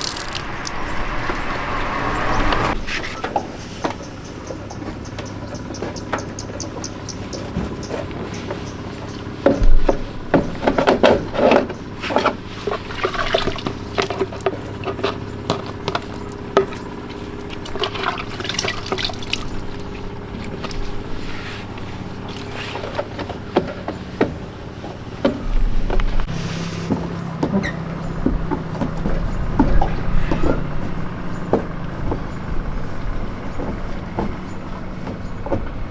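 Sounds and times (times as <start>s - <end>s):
water splashing and dripping: 0.0s - 2.8s, 17.3s - 21.0s.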